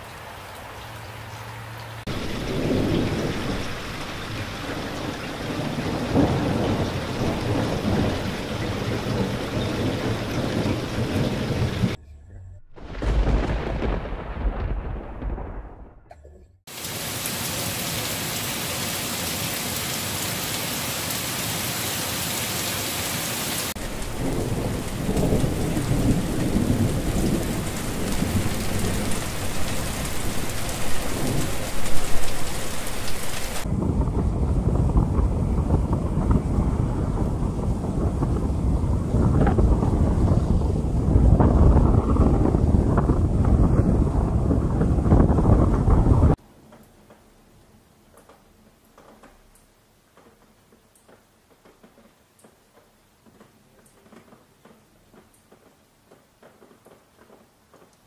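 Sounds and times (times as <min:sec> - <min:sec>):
heavy rain: 0:00.0 - 0:12.0, 0:12.8 - 0:16.0, 0:16.7 - 0:58.0
thunder rumbling: 0:02.0 - 0:16.6, 0:23.7 - 0:46.4.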